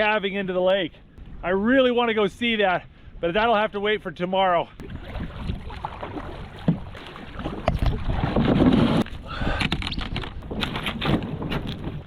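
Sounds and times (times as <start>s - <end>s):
water splashing and rushing: 4.8s - 9.3s.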